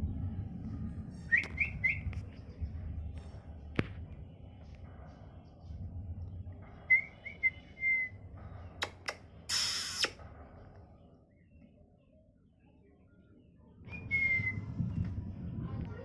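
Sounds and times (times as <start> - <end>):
parrot whistled chirps: 8.8 - 10.2
sharp clicks: 8.8 - 10.2
harsh noisy burst: 8.9 - 10.2.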